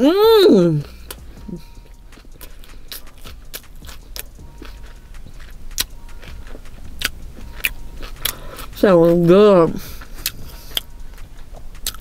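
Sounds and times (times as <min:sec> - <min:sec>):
chewing sandwich: 0:00.8 - 0:12.0
wet mouth clicks and smacks: 0:02.0 - 0:08.8, 0:10.0 - 0:12.0.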